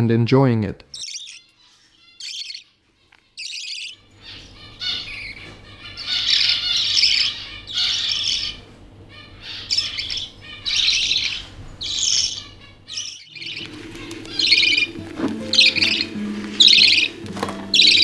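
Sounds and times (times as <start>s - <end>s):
budgie chicks chirping: 0.8s - 18.0s
low steady hum: 13.4s - 18.0s.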